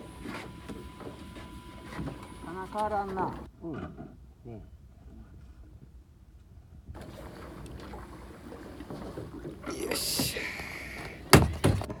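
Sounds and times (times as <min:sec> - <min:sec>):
wind and water rushing: 0:07.0 - 0:12.0
loud knocks: 0:11.3 - 0:12.0.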